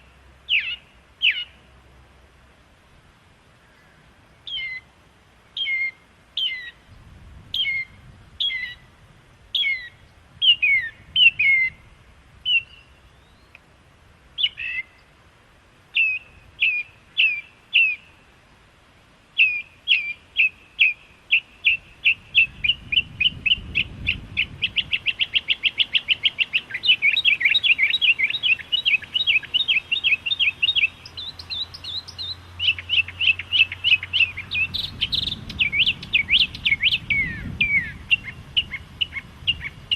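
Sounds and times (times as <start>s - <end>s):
songbird whistling and trilling: 0.5s - 1.6s, 4.5s - 4.9s, 5.6s - 6.8s, 7.6s - 8.8s, 9.6s - 11.8s, 12.4s - 13.6s, 14.4s - 15.0s, 16.0s - 18.0s, 19.4s - 39.9s.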